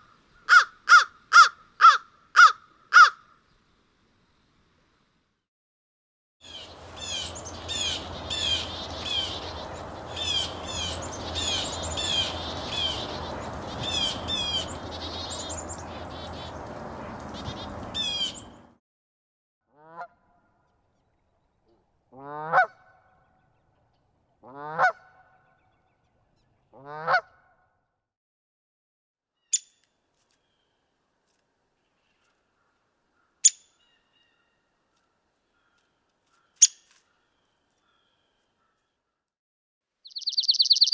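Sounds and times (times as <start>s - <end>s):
flock of geese calling: 6.5s - 18.7s
goose rising honks: 6.7s - 18.7s.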